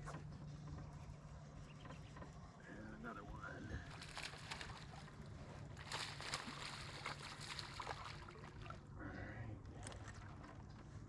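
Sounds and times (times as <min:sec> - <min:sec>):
steady low hum: 0:00.0 - 0:11.0
water splashing against a boat: 0:03.7 - 0:11.0.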